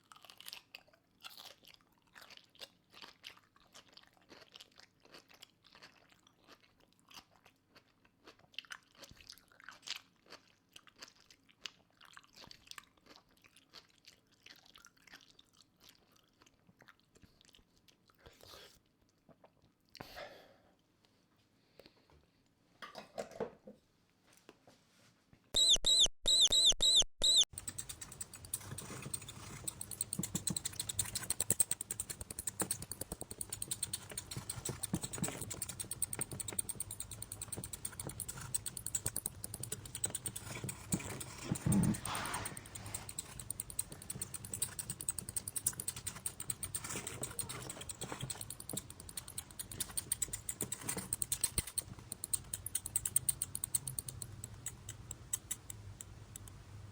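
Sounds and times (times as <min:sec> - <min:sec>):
high-pitched mouse squeaks: 0:25.6 - 0:56.6
louder scrape: 0:40.3 - 0:44.1.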